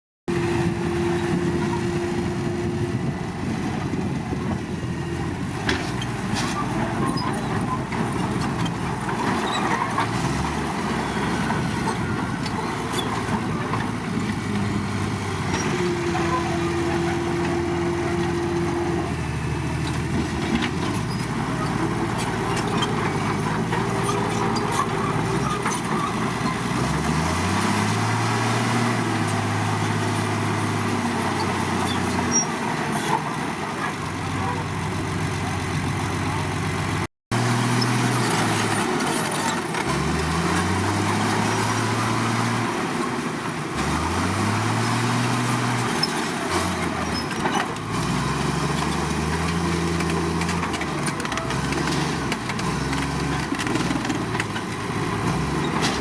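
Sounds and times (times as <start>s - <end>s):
bulldozer diesel engine running: 0.3s - 56.0s.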